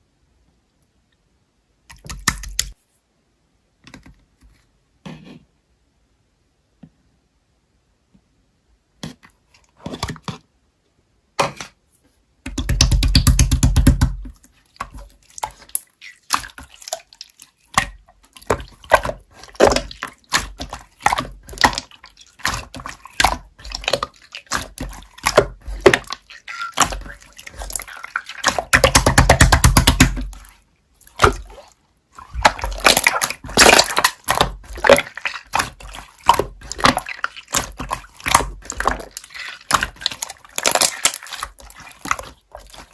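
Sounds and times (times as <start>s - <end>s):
slime squelching: 12.5s - 42.9s.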